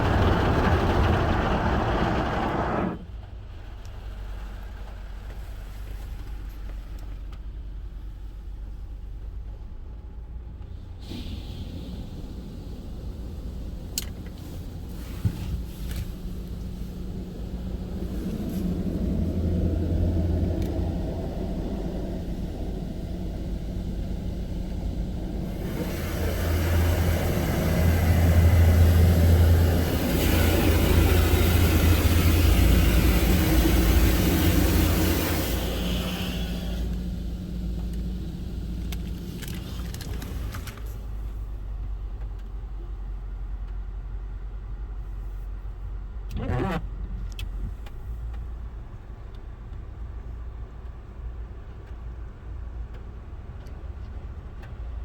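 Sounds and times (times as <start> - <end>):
deep machine hum: 0.0 - 3.1, 16.2 - 39.4
car wash rushing noise: 0.0 - 7.6, 10.8 - 41.5.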